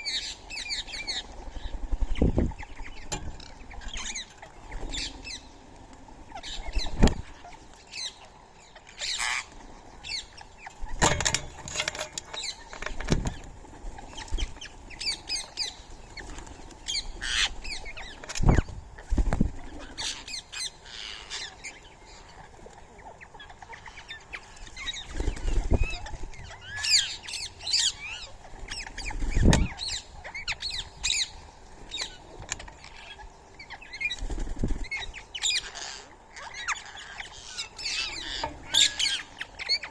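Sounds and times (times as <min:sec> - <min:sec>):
birds chirping: 0:00.0 - 0:39.9
birds landing thumps: 0:10.9 - 0:13.6
bird wingbeats: 0:10.9 - 0:20.0, 0:34.0 - 0:35.1.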